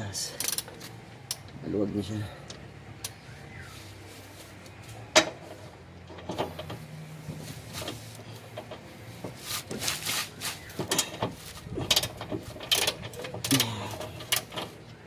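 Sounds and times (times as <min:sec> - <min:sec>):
hand tools clicking on metal: 0:10.6 - 0:14.8.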